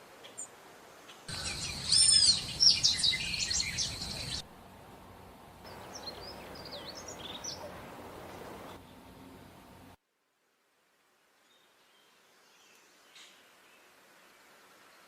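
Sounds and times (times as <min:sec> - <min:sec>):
faint bird chirps: 0:01.1 - 0:04.4
songbirds whistling and trilling: 0:01.3 - 0:04.4, 0:05.7 - 0:07.7.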